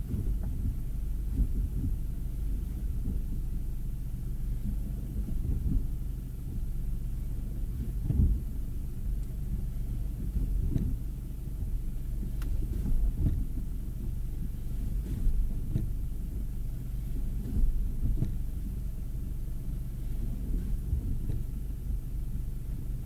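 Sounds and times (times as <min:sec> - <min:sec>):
low road rumble: 0:00.0 - 0:23.0
dull knocks from car: 0:07.8 - 0:08.5, 0:17.4 - 0:18.5.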